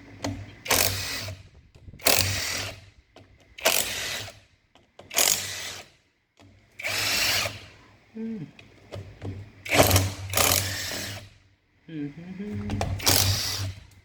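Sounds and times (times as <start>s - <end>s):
power driver bursts: 12.7s - 13.8s.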